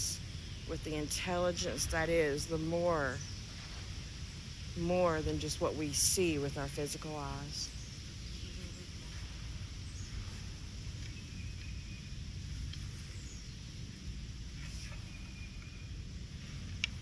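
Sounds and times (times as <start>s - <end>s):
steady low rumble: 0.0s - 17.0s
distant bird calls: 7.5s - 17.0s.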